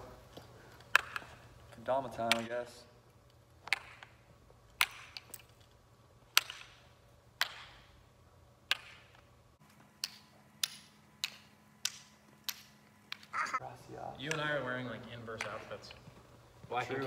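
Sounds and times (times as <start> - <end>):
wooden ball clacking into cups: 3.6 - 5.6, 6.3 - 8.0, 8.6 - 9.3, 9.9 - 13.4.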